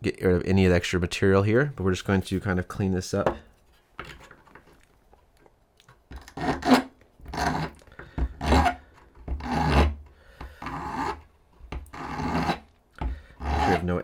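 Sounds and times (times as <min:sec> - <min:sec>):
file rasping on metal: 0:06.2 - 0:10.0, 0:10.6 - 0:11.2, 0:11.9 - 0:12.7, 0:13.4 - 0:14.0.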